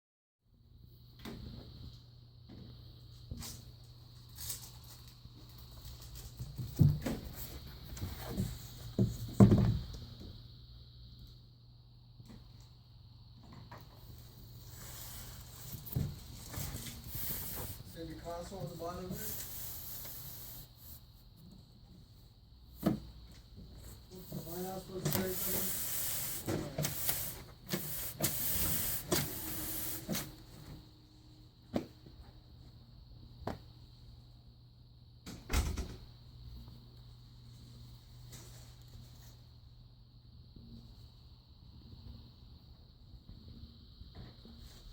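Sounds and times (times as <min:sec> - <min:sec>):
desk pad rubbing on desk: 0:14.7 - 0:21.0, 0:24.2 - 0:30.4.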